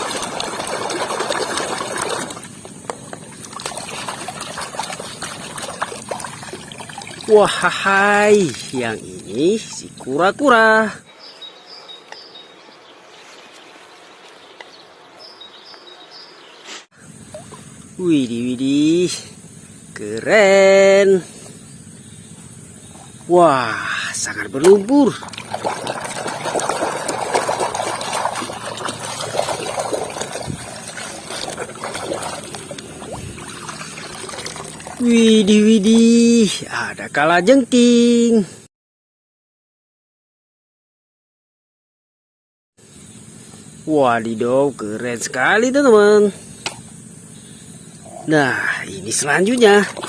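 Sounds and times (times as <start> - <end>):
water dripping: 0.0 - 10.1, 24.6 - 36.2, 49.2 - 50.0
water splashing and trickling: 0.0 - 11.0, 17.3 - 17.7, 23.4 - 36.7, 48.9 - 50.0
faint outdoor background noise: 0.0 - 38.7, 42.8 - 50.0.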